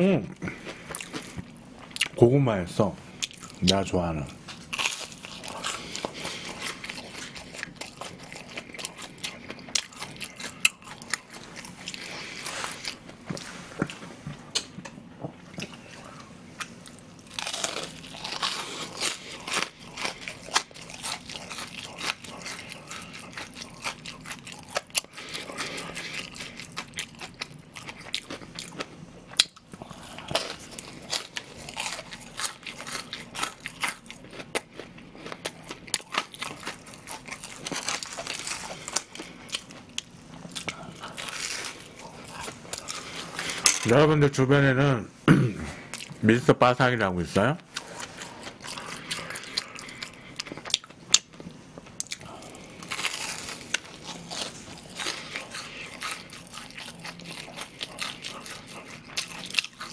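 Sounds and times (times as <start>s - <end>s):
crunching fried breading: 3.3s - 13.0s, 17.2s - 43.1s, 52.0s - 59.9s.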